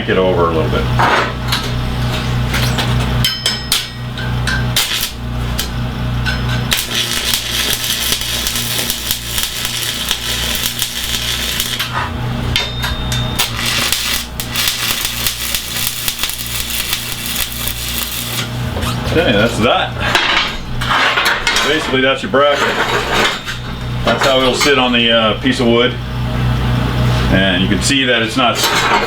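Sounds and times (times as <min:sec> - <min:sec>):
low electrical hum: 0:00.0 - 0:29.0
arc welding crackle and hiss: 0:04.7 - 0:12.4, 0:13.3 - 0:19.6.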